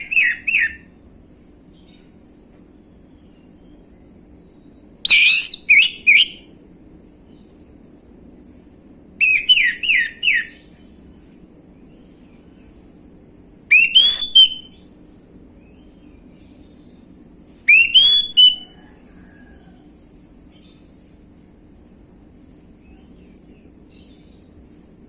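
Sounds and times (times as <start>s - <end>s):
thrush whistling song: 13.7s - 14.7s, 17.7s - 18.8s.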